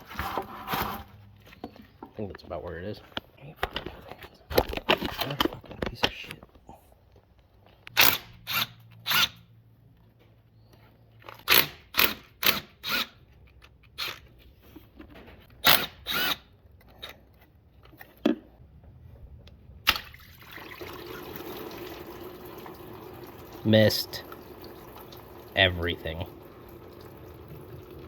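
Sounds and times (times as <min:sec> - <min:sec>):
coolant pouring and splashing: 0:19.9 - 0:28.0.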